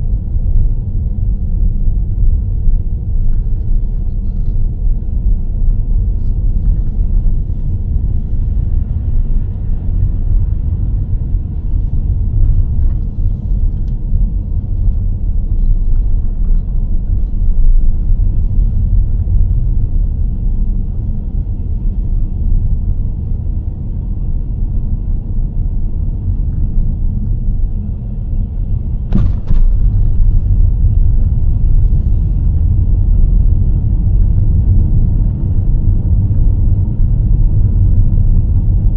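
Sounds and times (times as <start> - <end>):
car tyres rumbling: 0.0 - 38.9
sharp knock: 29.1 - 29.8.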